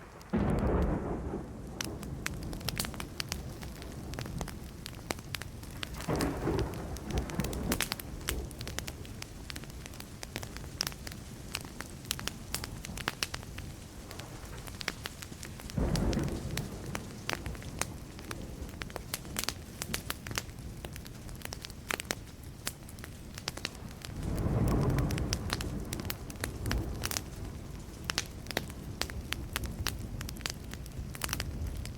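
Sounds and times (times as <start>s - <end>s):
distant thunder rumbling: 0.0s - 10.5s, 14.0s - 19.4s, 23.7s - 31.9s
wood fire crackling and popping: 0.0s - 31.9s.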